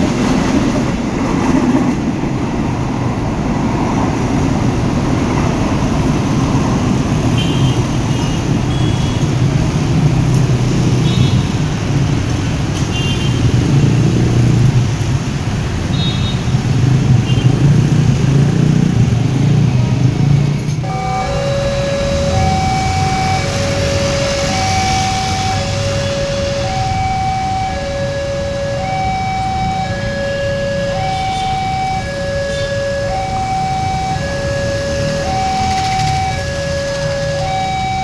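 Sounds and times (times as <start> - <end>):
freight train rumbling past: 0.0 - 8.7, 16.5 - 37.6.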